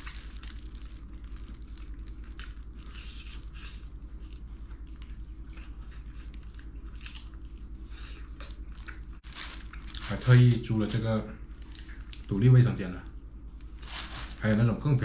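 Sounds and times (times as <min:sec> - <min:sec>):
person chewing food: 0:00.0 - 0:10.1, 0:11.4 - 0:12.3.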